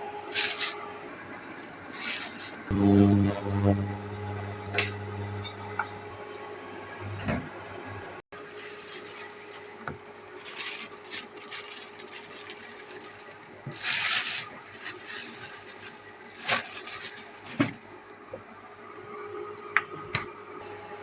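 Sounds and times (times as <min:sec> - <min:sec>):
low steady hum: 0:02.7 - 0:15.8
rustling handling noises: 0:08.4 - 0:18.0.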